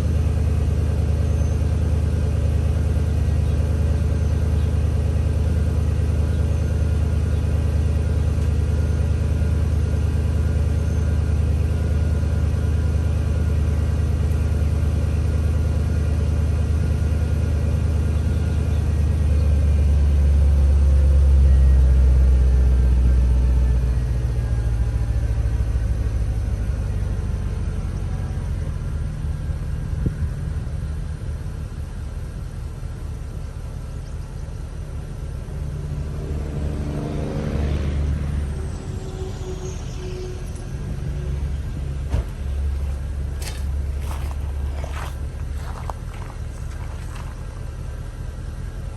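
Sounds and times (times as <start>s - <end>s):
car engine idling: 0.0s - 20.4s, 38.4s - 48.9s.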